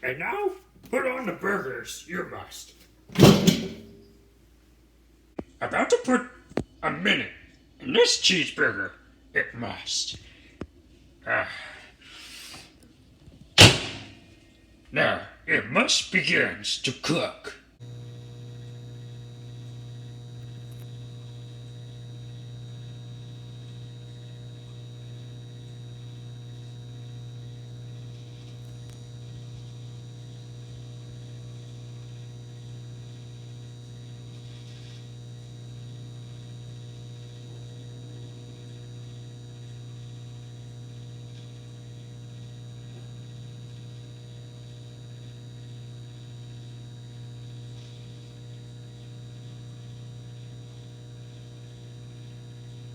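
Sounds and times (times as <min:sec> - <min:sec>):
microwave oven humming: 0:03.1 - 0:04.2, 0:13.5 - 0:14.4, 0:17.8 - 0:52.9.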